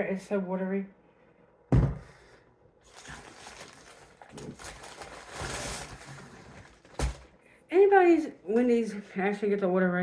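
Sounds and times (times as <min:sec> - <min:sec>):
knock: 0:01.7 - 0:02.1
food packaging rustling: 0:02.8 - 0:07.4.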